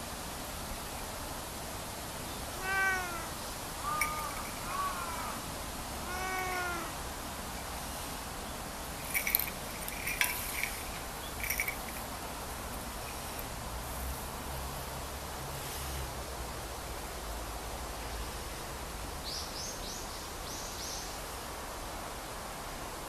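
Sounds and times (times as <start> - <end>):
cat chirp-like calls: 2.5 - 5.4, 6.0 - 7.0
cat meowing: 2.6 - 5.4, 6.0 - 7.0.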